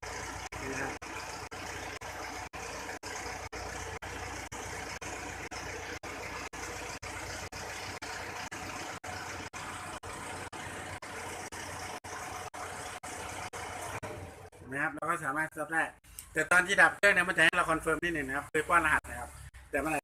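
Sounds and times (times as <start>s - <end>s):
car engine idling: 0.0s - 15.2s.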